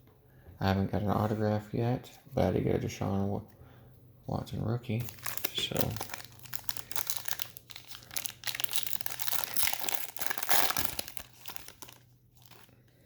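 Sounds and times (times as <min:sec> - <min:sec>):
wrapper crinkling and tearing: 0:05.0 - 0:12.9.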